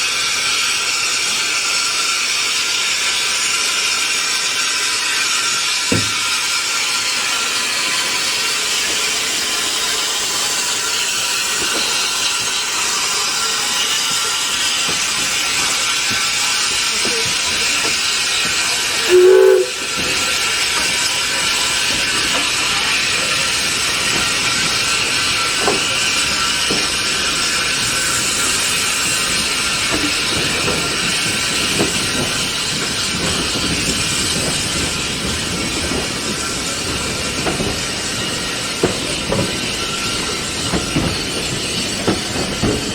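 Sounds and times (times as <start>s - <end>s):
steam locomotive hissing: 0.0s - 42.9s
steam whistle blast: 19.0s - 20.0s.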